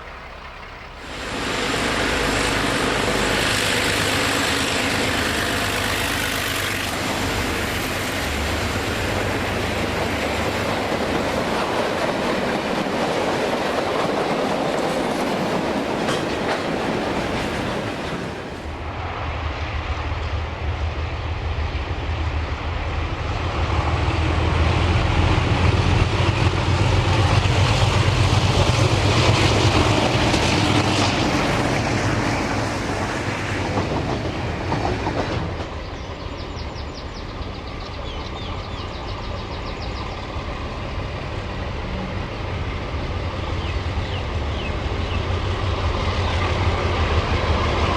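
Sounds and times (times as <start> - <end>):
diesel locomotive engine: 0.0 - 47.9
freight wagons clattering: 10.9 - 18.7.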